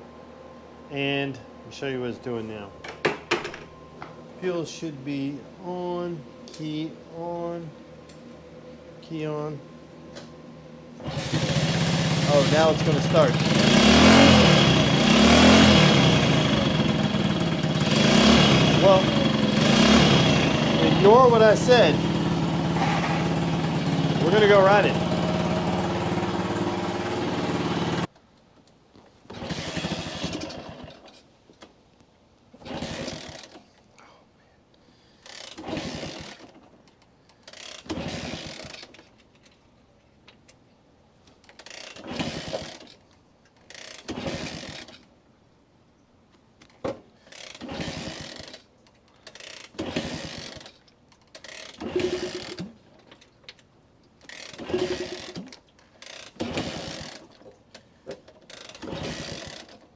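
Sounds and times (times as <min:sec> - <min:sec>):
engine cranking without catching: 0:11.0 - 0:28.1, 0:29.3 - 0:31.3, 0:32.6 - 0:33.8, 0:35.2 - 0:39.6, 0:41.4 - 0:45.2, 0:46.6 - 0:59.9
motorcycle engine running: 0:11.1 - 0:28.1.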